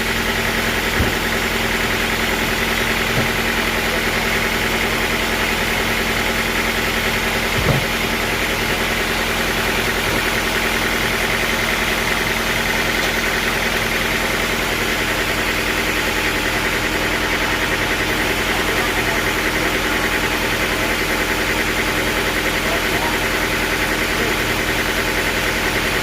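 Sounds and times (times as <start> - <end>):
sawmill engine running: 0.0 - 26.0
brief knock: 7.6 - 7.9.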